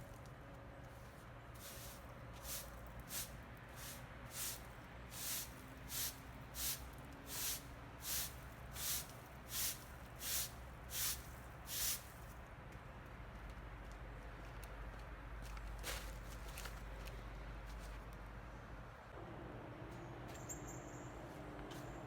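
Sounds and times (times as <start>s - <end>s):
broom sweeping: 1.6s - 12.2s.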